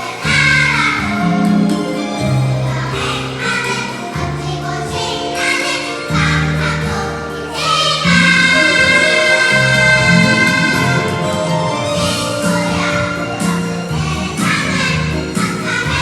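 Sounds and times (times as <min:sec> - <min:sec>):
children's choir singing: 0:00.0 - 0:16.0
instrumental accompaniment: 0:00.0 - 0:16.0.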